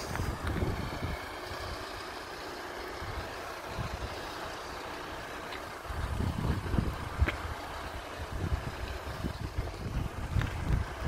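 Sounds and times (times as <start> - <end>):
wind thumping on microphone: 0.0 - 1.2, 5.9 - 7.6, 8.3 - 11.0
approaching train rumble: 0.0 - 11.0.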